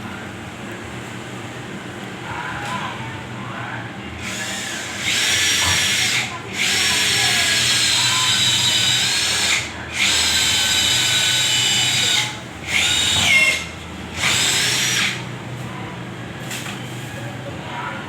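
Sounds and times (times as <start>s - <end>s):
power drill whining: 4.2s - 15.2s.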